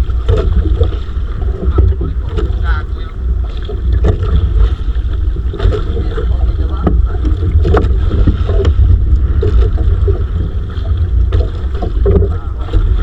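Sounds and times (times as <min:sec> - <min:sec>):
boat knocks and clatter: 0:00.0 - 0:13.0
wind buffeting microphone: 0:00.0 - 0:13.0.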